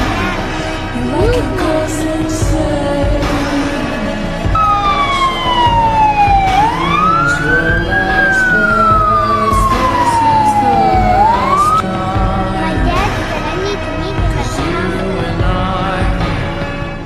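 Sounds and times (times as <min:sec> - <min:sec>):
ambulance siren wailing: 0:04.6 - 0:11.8.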